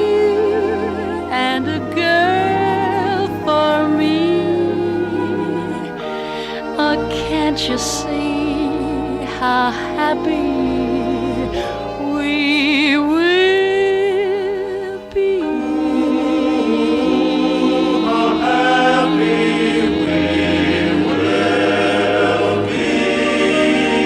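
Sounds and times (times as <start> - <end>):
singer holding vibrato note: 0.0 - 13.2
choir singing: 0.0 - 24.0
orchestra: 0.0 - 24.0.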